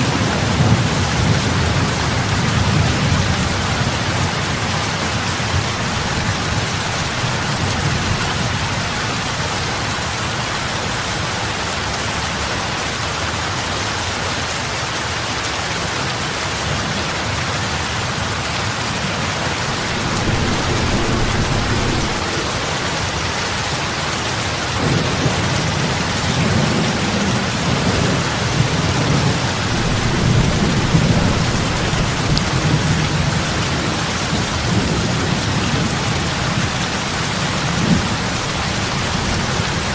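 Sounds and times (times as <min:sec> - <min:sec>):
heavy rain on water: 0:00.0 - 0:39.9
low rumble: 0:19.5 - 0:23.3.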